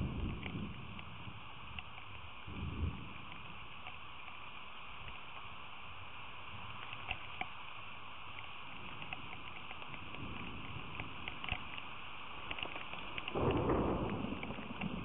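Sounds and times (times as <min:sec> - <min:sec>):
raindrops ticking close: 0:00.0 - 0:15.0
steady rain hiss: 0:00.0 - 0:15.0
sharp drip clicks: 0:08.3 - 0:15.0.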